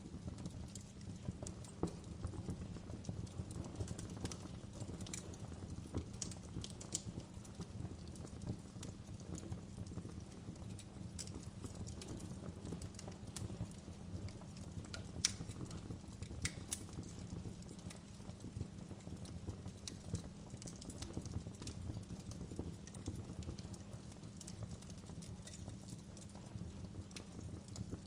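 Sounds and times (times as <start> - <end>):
fire pops and snaps: 0.0 - 28.0
low rumble of flames: 0.0 - 28.0
wood fire crackling: 0.0 - 28.0.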